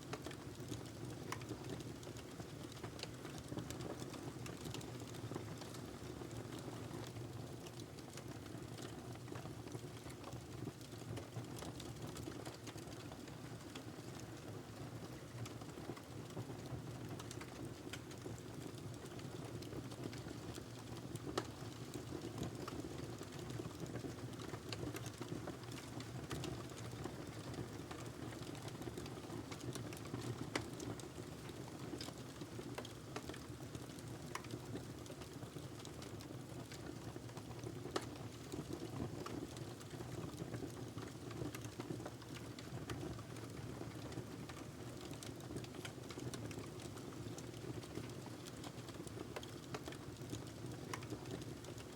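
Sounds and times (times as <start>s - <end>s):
wood fire burning: 0.1s - 14.5s, 15.4s - 51.9s
logs crackling and popping: 17.1s - 51.9s.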